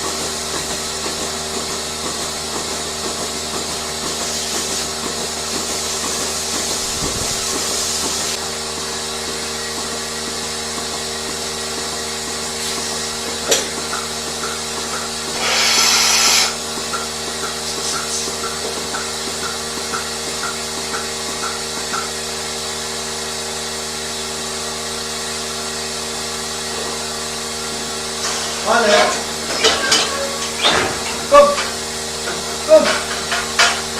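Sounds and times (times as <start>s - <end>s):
machinery humming: 5.0s - 33.9s
short hiss: 15.4s - 16.6s.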